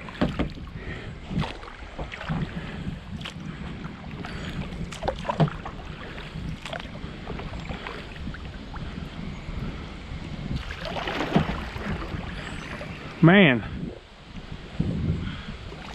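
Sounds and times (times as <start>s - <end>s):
sharp knocks and splashes: 0.0s - 0.7s, 1.3s - 3.5s, 4.1s - 8.8s, 10.5s - 12.9s
water rushing around kayak hull: 0.0s - 15.9s
wind rumble on microphone: 0.0s - 15.9s.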